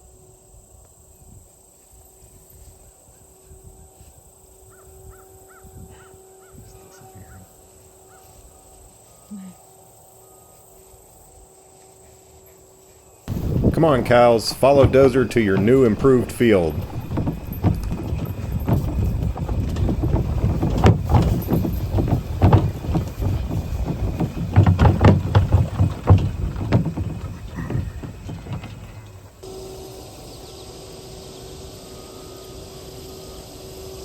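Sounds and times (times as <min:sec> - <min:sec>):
cattle hooves thudding: 0:13.3 - 0:29.6.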